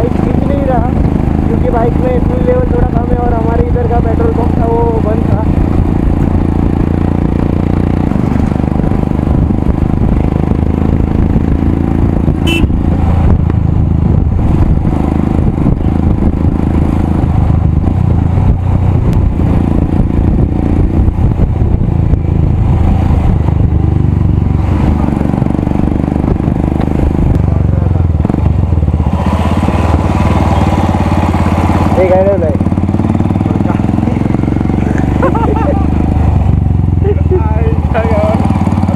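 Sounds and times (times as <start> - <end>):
motorcycle engine exhaust note: 0.0 - 38.9.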